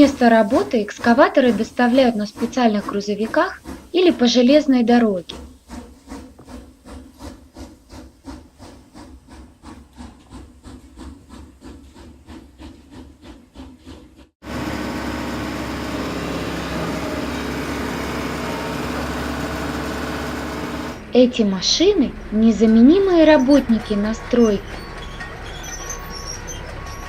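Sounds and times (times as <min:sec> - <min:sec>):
heavy engine running with low hum: 0:14.4 - 0:27.0.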